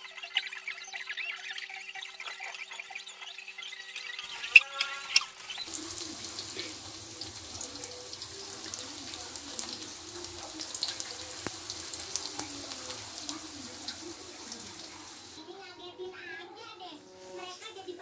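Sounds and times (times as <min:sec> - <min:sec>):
food sizzling in hot oil: 0:02.8 - 0:18.0
oil popping and crackling: 0:04.2 - 0:15.7.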